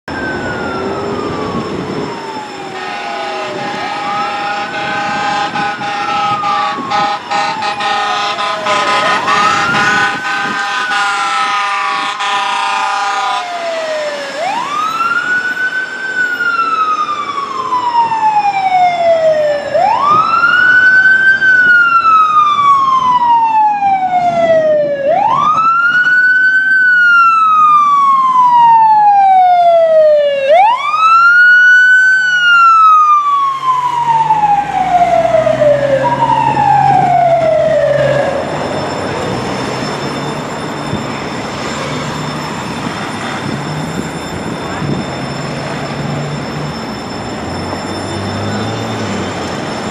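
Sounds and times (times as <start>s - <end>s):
fire engine siren wailing: 0.0s - 49.9s
air horn blasts: 2.6s - 13.6s.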